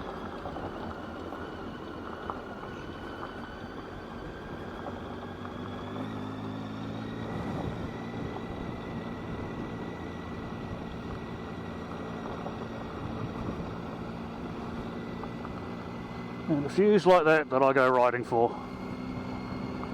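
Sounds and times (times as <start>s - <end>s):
motorcycle engine running: 0.0s - 19.9s
wind noise: 7.2s - 15.7s.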